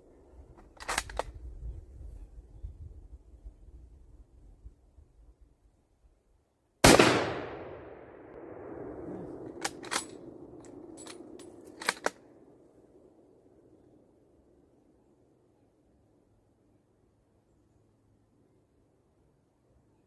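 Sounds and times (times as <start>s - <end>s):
rifle shot echoing: 6.8s - 12.6s
rifle bolt clicking: 9.5s - 12.2s.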